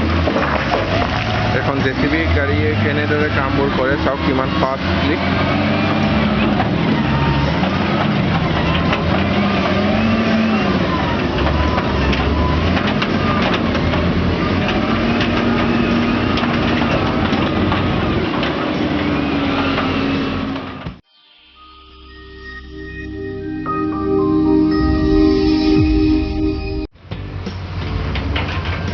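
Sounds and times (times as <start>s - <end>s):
diesel engine revving under load: 0.0s - 21.0s.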